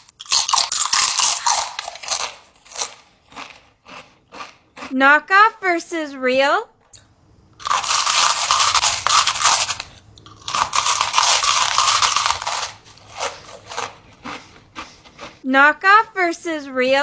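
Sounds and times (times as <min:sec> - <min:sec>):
crisp food crunching: 0:00.0 - 0:04.9, 0:07.6 - 0:15.4.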